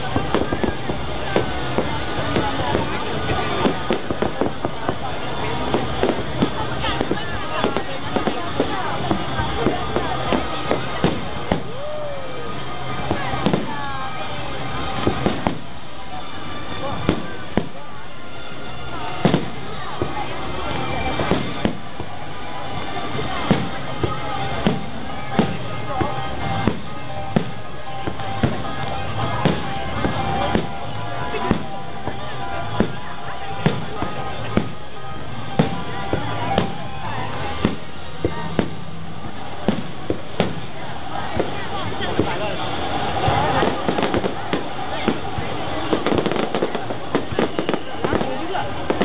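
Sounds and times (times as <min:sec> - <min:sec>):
music playing: 0:00.0 - 0:49.0.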